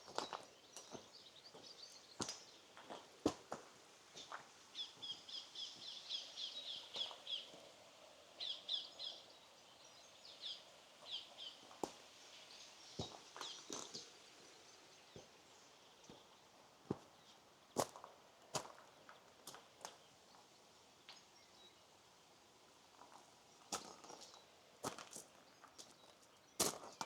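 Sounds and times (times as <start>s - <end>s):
small birds chirping: 0.0s - 3.1s, 4.2s - 18.0s.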